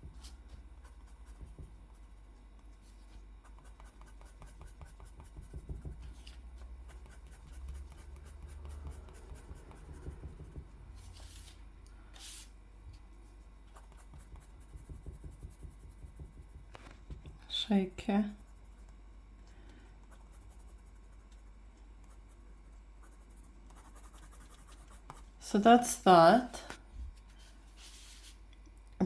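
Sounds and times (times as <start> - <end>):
drawing tool scratching on paper: 3.4 - 11.6, 13.7 - 17.2.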